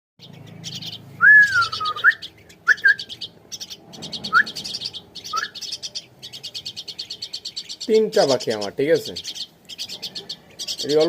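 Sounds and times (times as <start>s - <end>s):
young birds chirping rapidly: 0.2s - 11.0s
short upward whistles: 1.2s - 3.1s, 5.3s - 5.6s
whistled bird note: 1.2s - 3.2s, 4.0s - 5.7s.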